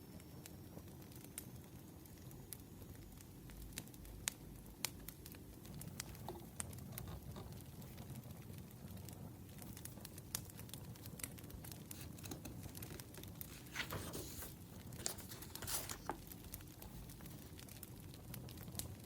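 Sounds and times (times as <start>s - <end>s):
wood fire crackling: 0.1s - 19.0s
paper rustling: 11.0s - 17.6s.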